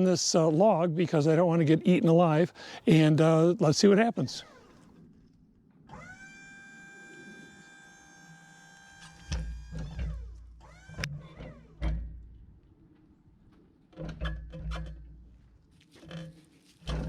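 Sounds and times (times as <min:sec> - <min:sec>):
hydraulic pump motor whining: 0:04.4 - 0:12.6.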